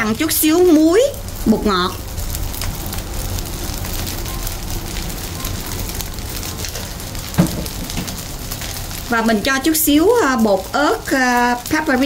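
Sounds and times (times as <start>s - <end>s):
rice sizzling in a hot pan: 0.0s - 12.0s
short knock: 7.4s - 8.1s.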